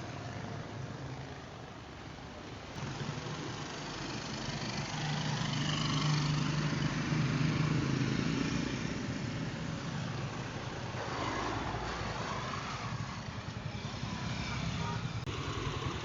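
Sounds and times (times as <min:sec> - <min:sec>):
road and wind noise: 0:00.0 - 0:16.0
vehicle engine running: 0:13.4 - 0:16.0.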